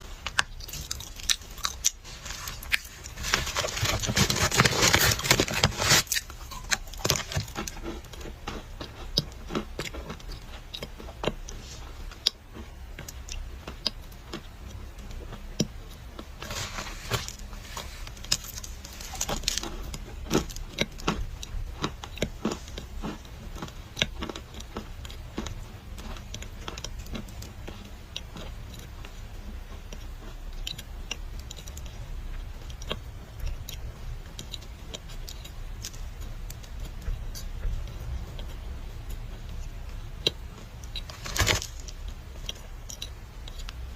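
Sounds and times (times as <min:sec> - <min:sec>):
dry clay crunching and crackling: 0:00.2 - 0:28.9, 0:40.2 - 0:43.9.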